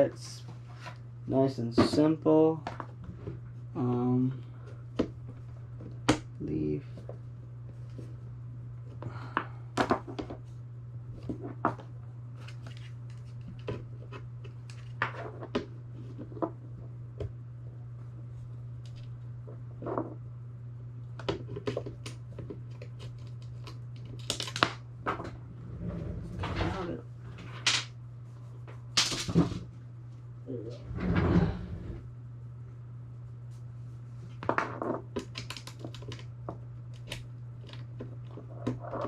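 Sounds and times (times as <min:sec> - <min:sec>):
steady low hum: 0:00.0 - 0:39.0
small parts clicking and tapping: 0:35.1 - 0:38.8.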